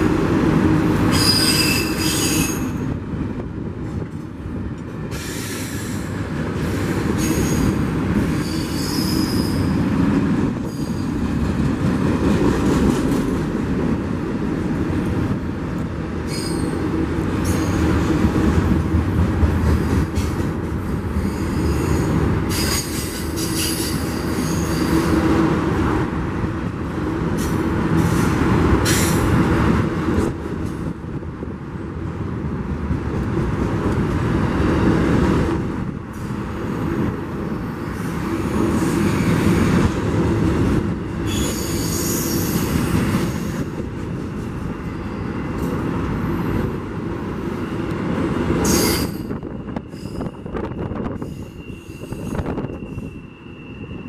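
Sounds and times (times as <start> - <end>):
freight train wheels rolling on track: 0.0 - 54.0
high wheel squeals: 1.1 - 2.7, 8.4 - 9.8, 16.3 - 16.8, 41.2 - 42.7, 48.6 - 54.0.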